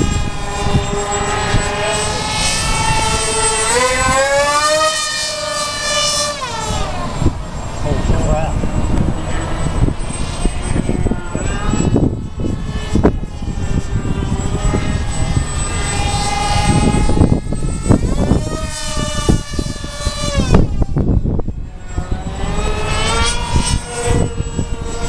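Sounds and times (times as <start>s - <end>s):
low rumble: 0.0s - 20.0s
electric motors whining: 0.0s - 25.0s.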